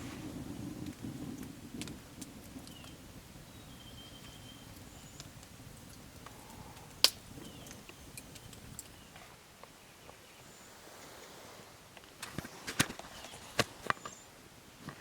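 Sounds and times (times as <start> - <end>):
campfire crackling and popping: 0.0 - 10.2, 11.8 - 14.2
loud sharp snap of fire: 5.2 - 7.8.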